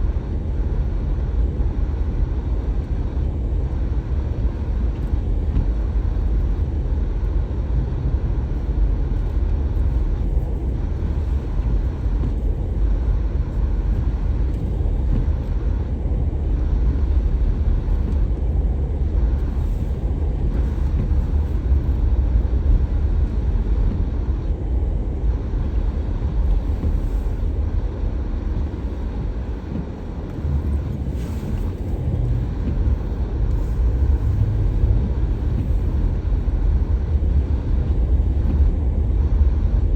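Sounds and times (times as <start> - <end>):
car driving through snow: 0.0 - 39.9.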